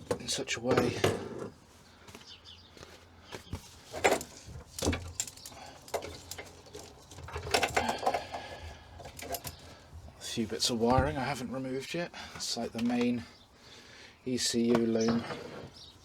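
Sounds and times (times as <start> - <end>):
handling knocks and clicks: 3.3 - 10.2, 12.7 - 13.2, 14.6 - 15.5.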